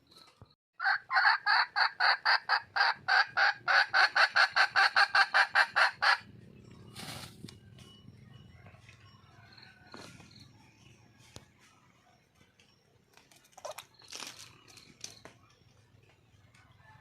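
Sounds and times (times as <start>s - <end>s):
junglefowl hen calling: 0.8s - 7.6s.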